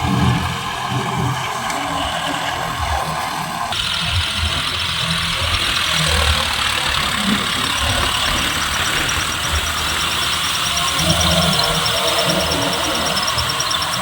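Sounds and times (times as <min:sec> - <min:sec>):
tractor engine running: 0:00.0 - 0:14.0
steady hiss: 0:00.1 - 0:14.0
fast even ticking: 0:03.1 - 0:14.0.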